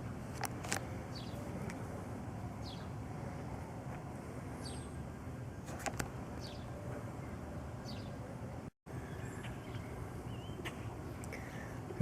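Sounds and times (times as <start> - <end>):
steady low rumble: 0.0 - 12.0
high falling bird chirps: 4.5 - 11.8.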